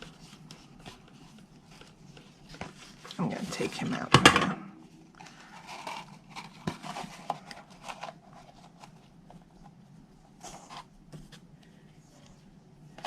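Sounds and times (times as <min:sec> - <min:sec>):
paper box and ribbon rustling: 0:00.0 - 0:04.0, 0:05.2 - 0:11.5.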